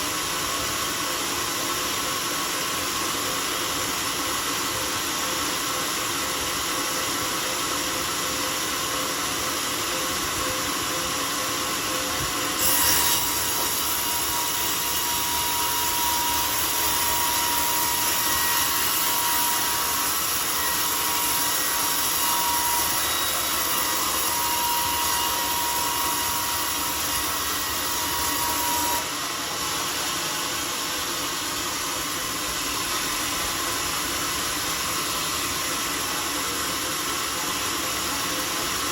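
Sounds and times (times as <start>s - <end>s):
sawmill blade cutting log: 9.8s - 37.7s.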